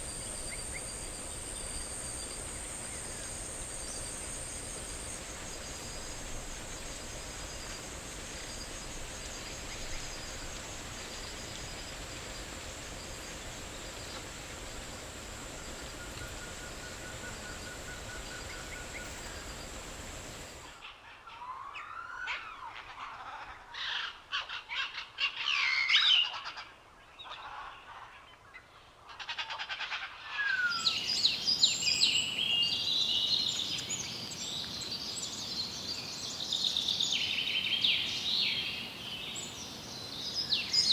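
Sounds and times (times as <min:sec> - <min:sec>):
thin high whine: 0:00.0 - 0:20.7
wild birds calling: 0:00.0 - 0:20.7
insect drone: 0:00.0 - 0:20.8.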